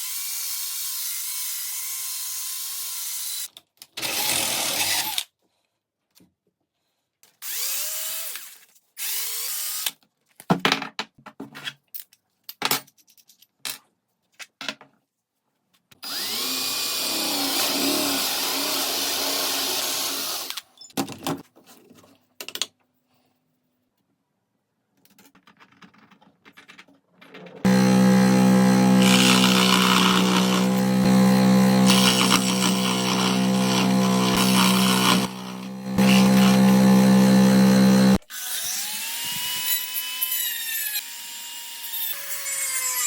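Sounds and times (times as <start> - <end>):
electric power tool motor: 16.0 - 20.6, 27.6 - 43.0.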